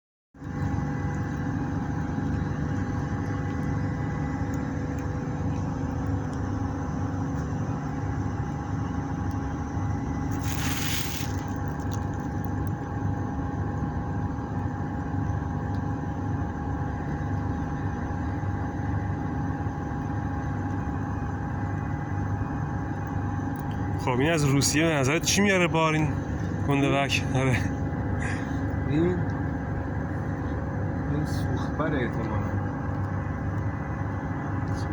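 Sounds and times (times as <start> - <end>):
brief hiss: 10.3 - 11.8.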